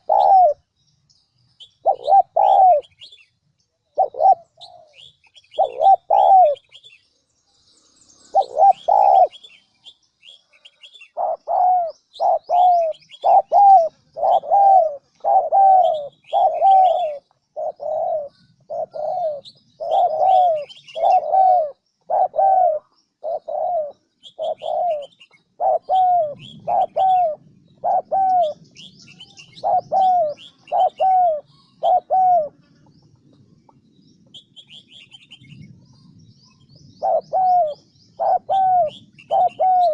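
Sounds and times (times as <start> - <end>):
dove cooing: 0.0 - 0.6, 1.6 - 3.2, 3.9 - 7.0, 8.3 - 9.6, 10.7 - 33.1, 37.0 - 39.9
small birds chirping: 0.0 - 39.9.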